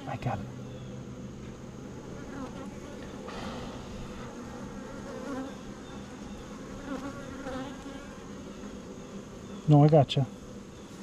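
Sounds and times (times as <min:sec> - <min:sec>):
honeybees buzzing: 0:00.0 - 0:11.0
bee sweeping close past: 0:01.8 - 0:09.6.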